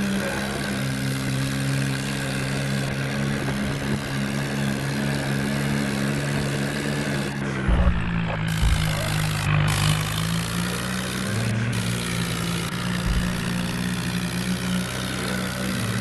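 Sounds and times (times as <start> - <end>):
tractor diesel engine running: 0.0 - 16.0
loud thumps: 7.6 - 9.8, 12.8 - 14.1.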